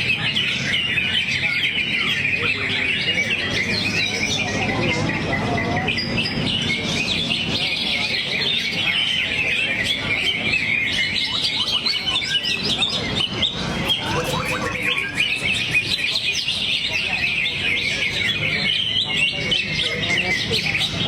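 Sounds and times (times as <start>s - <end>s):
bird singing rapid chirps and trills: 13.6s - 15.8s.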